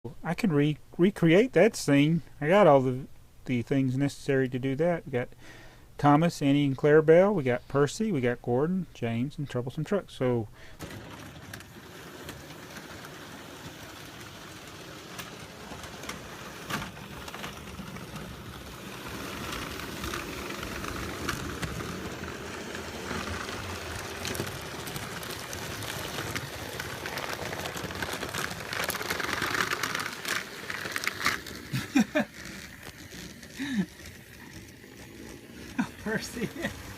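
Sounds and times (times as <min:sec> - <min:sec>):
model train wheels rattling on track: 0:10.7 - 0:36.9.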